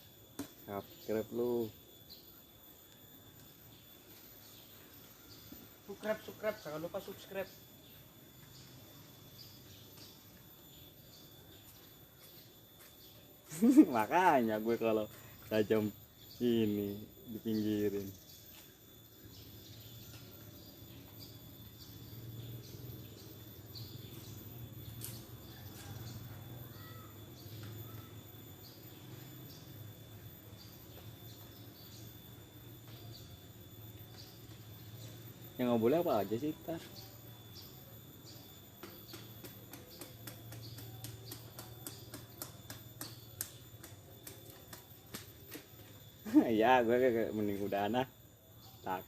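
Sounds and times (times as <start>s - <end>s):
insects chirping: 0.0s - 49.0s
sharp clicks and ticks: 38.8s - 45.7s.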